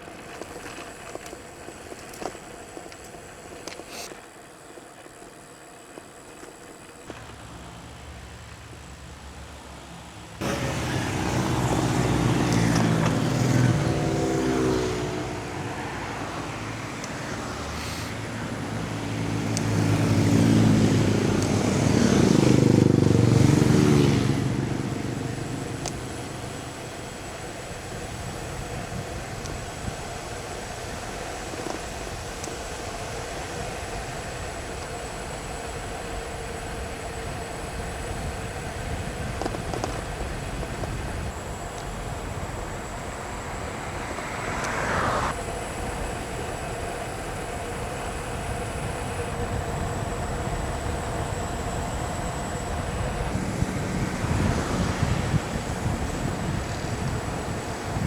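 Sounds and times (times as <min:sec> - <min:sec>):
road noise: 0:00.0 - 0:58.0
loud vehicle passing: 0:07.2 - 0:31.0, 0:41.9 - 0:58.0.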